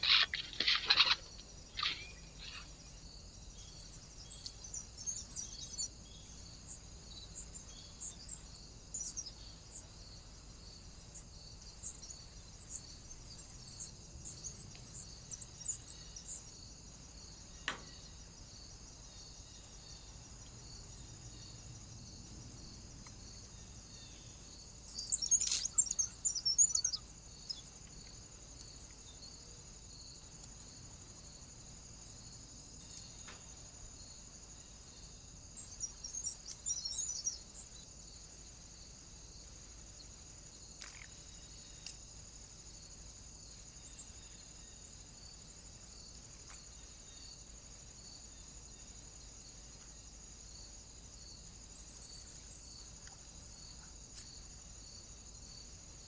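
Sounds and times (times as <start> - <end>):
high pulsing insect trill: 0.0 - 56.0
wild birds chirping: 0.0 - 56.0.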